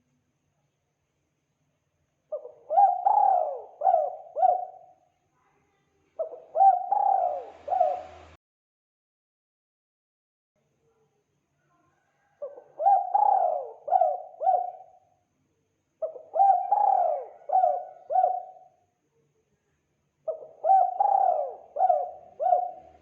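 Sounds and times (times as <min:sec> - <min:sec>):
dove cooing: 0:02.3 - 0:05.0, 0:06.2 - 0:08.4, 0:12.3 - 0:15.0, 0:16.0 - 0:18.7, 0:20.3 - 0:23.0.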